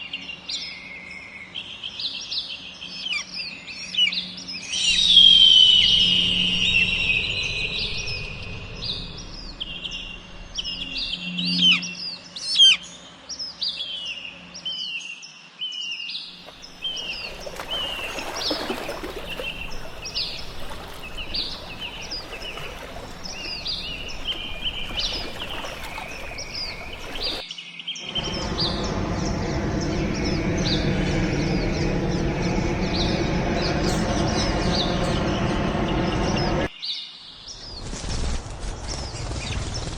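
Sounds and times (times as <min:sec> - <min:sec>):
small birds chirping: 0:16.4 - 0:27.4, 0:28.0 - 0:36.7
steady noise with low hum: 0:16.4 - 0:27.4, 0:28.0 - 0:36.7.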